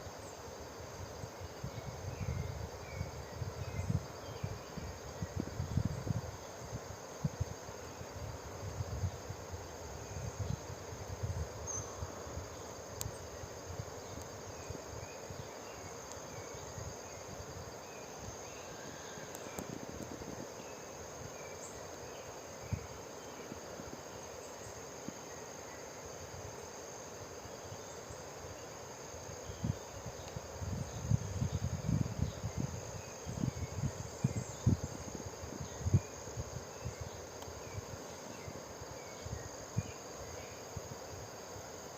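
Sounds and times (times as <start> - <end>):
insects trilling: 0.0 - 41.9
wind buffeting microphone: 1.7 - 7.6, 18.8 - 20.6, 29.5 - 37.8.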